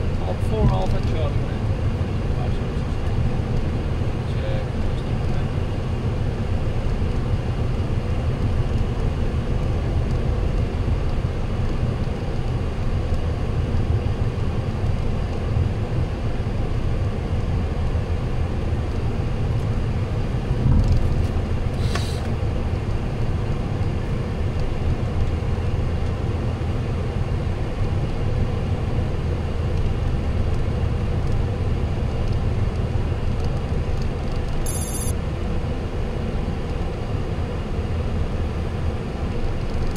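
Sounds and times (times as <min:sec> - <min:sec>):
cockpit engine and airflow noise: 0:00.0 - 0:39.9
high beep: 0:34.7 - 0:35.1.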